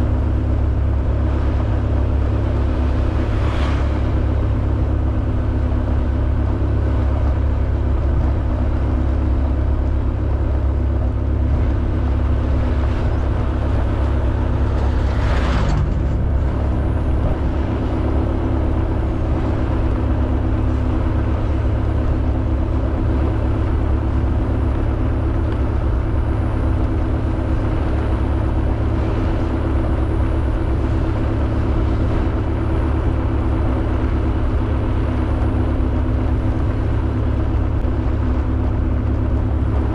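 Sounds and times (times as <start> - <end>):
wind rumble on microphone: 0.0 - 39.9
brief rushing sound: 14.4 - 17.8.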